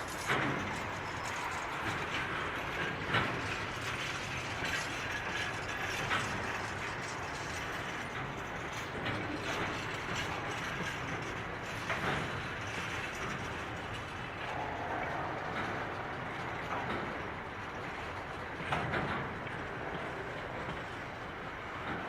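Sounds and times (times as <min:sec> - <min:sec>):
metallic clanks of couplings: 0:00.0 - 0:14.8
freight train wagons rumbling: 0:00.0 - 0:22.0.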